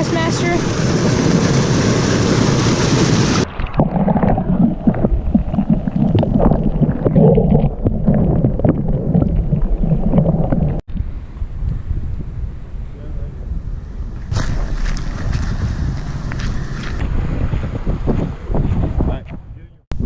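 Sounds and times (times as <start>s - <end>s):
wind buffeting microphone: 0.0s - 20.0s
water lapping against kayak: 0.2s - 10.9s, 14.2s - 17.5s
small splashes: 14.3s - 16.6s.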